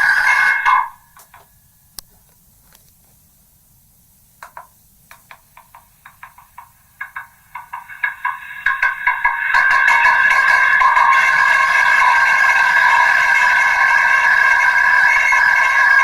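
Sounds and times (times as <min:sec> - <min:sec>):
distorted megaphone playback: 0:00.0 - 0:01.5
crackly noise fragments: 0:04.4 - 0:16.0.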